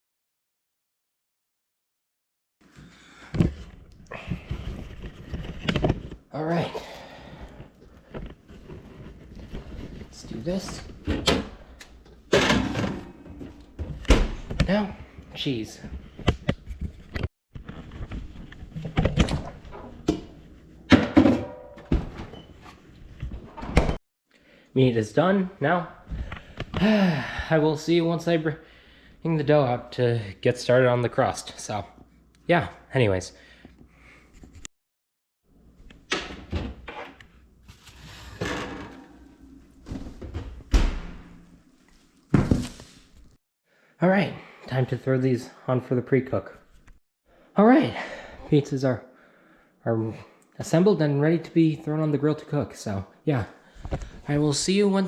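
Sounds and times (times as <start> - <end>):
kitchen knocks and clatters: 10.6 - 14.7, 18.7 - 22.6, 38.3 - 41.6
cookware knocks and thuds: 12.3 - 13.2, 20.9 - 22.2.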